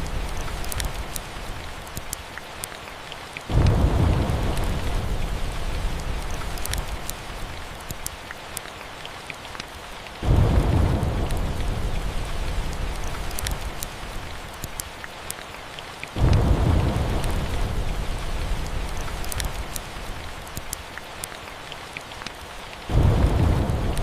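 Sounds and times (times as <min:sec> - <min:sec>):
steady rain: 0:00.0 - 0:24.0
wood fire crackling: 0:00.0 - 0:24.0
deep rumbles of thunder: 0:03.5 - 0:07.0, 0:10.2 - 0:13.8, 0:16.2 - 0:19.5, 0:22.9 - 0:24.0.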